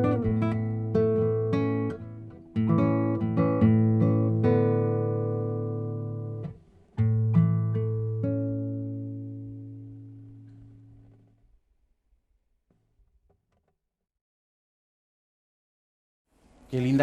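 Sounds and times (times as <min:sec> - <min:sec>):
acoustic guitar folk melody: 0:00.0 - 0:11.4.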